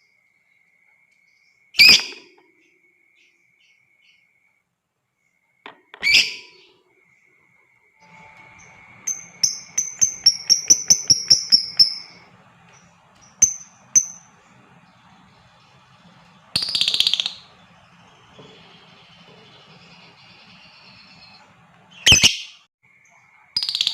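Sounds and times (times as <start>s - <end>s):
bird chirping: 0.0s - 4.6s, 5.2s - 23.9s
bird screeching: 6.0s - 6.7s, 16.5s - 17.5s.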